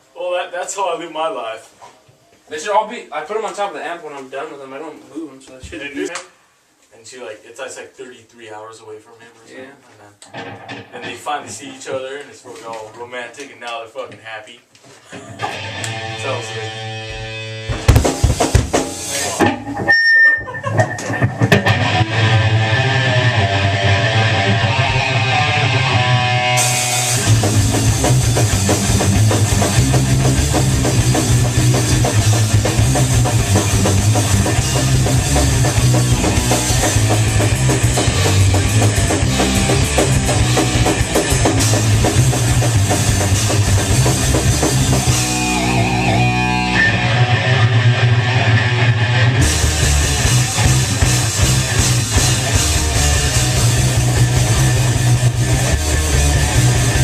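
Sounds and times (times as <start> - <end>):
lone electric guitar riff: 15.4 - 17.9, 20.6 - 57.0
thrash metal band playing: 15.4 - 19.9, 20.6 - 57.0.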